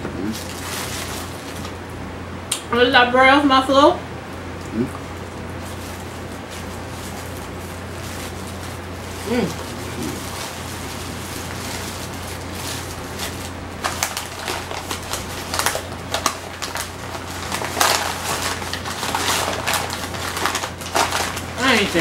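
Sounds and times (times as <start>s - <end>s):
steady low hum: 0.0s - 22.0s
paper wrapper crinkling: 0.3s - 1.8s, 5.6s - 22.0s
crunching chews: 8.2s - 21.4s.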